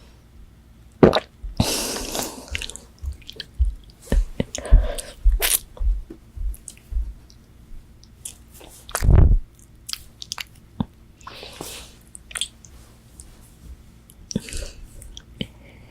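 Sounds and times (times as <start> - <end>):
wet chewing: 2.0 - 5.6, 8.2 - 10.6, 12.1 - 12.7.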